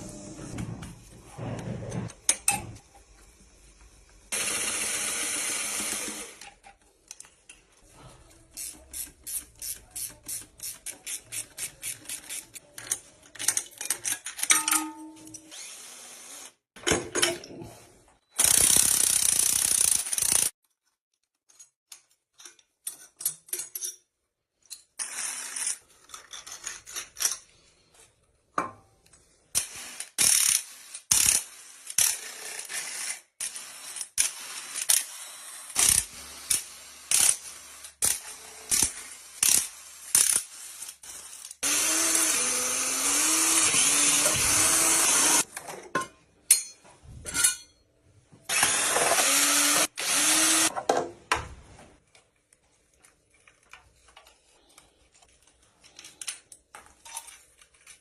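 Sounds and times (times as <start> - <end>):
ratchet wrench clicking: 18.4 - 20.5, 29.6 - 32.3, 35.8 - 37.4, 38.0 - 40.5.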